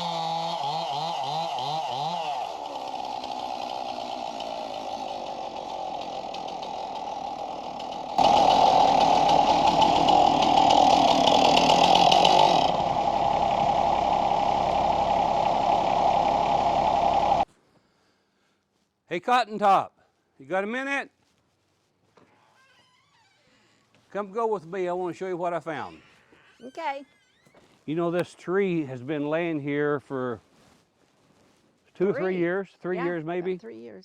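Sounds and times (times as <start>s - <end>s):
chainsaw sawing a log: 0.0s - 17.5s.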